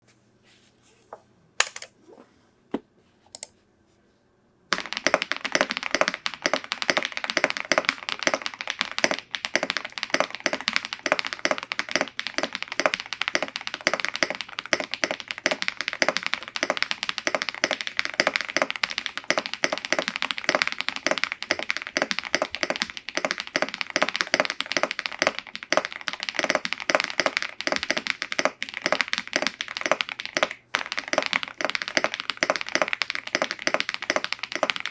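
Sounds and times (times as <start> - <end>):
mechanical keyboard typing: 4.7 - 34.9.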